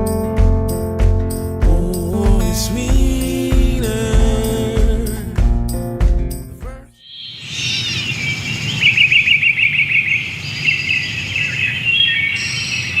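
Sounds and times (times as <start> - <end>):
bird trill: 7.0 - 13.0
birds chirping and singing: 7.0 - 13.0.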